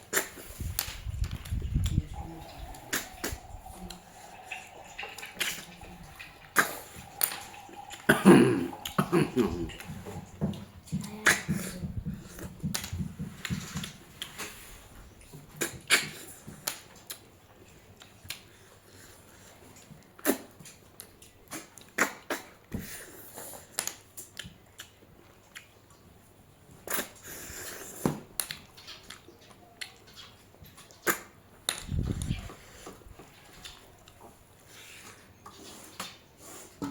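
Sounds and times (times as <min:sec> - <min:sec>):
chewing and crunching: 0:08.7 - 0:36.2
wet mouth clicks and smacks: 0:20.1 - 0:22.6, 0:30.7 - 0:32.5.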